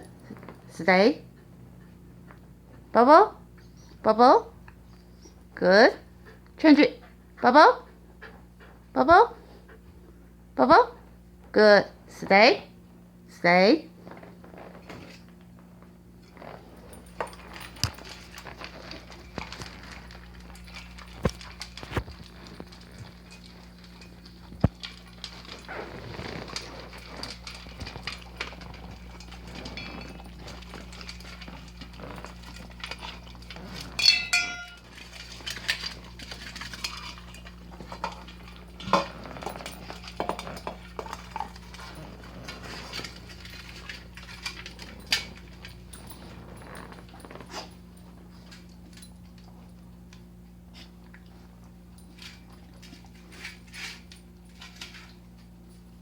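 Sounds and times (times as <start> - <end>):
pets eating from clinking bowls: 16.2 - 56.0.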